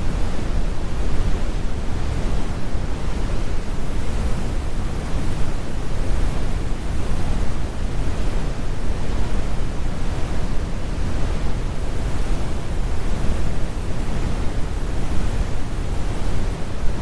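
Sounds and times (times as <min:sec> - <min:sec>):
brown noise rumble: 0:00.0 - 0:17.0.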